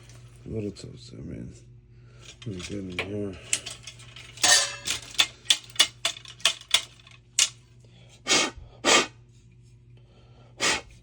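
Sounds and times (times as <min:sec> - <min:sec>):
steady low hum: 0:00.0 - 0:11.0
small metal clicks and scrapes: 0:02.2 - 0:07.6.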